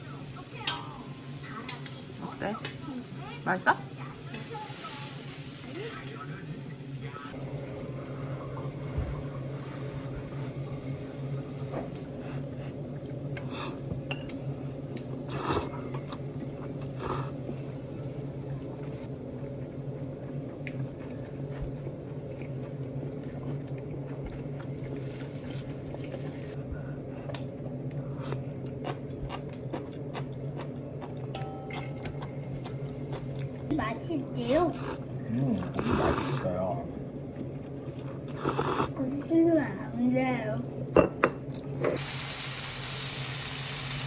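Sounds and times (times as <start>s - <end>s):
steady low hum: 5.8s - 42.0s
cutlery clinking against dishes: 14.0s - 14.4s, 31.2s - 32.4s.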